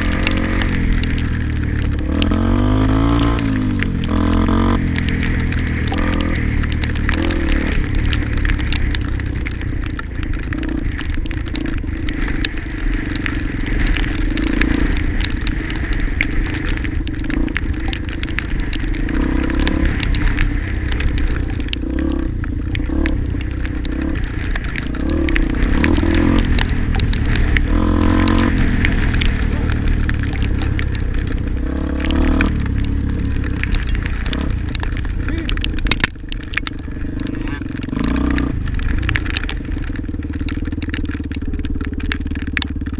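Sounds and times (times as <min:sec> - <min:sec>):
small rattles and crackles: 0:00.0 - 0:42.9
steady low rumble: 0:00.0 - 0:42.9
faint voices: 0:35.2 - 0:35.6.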